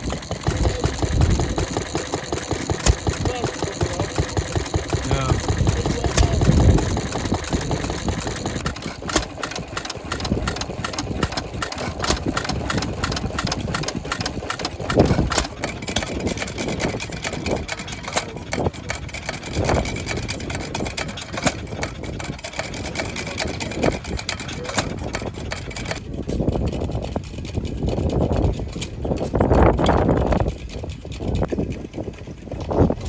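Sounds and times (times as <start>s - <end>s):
valve gear clicking: 0.0s - 25.9s
stationary engines running: 0.0s - 33.0s
wind buffeting microphone: 0.0s - 33.0s.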